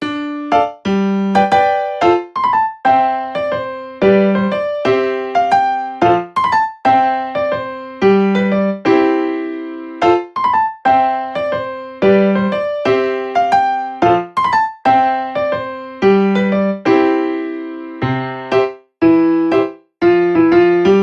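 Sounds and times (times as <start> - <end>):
electric piano melody: 0.0 - 21.0.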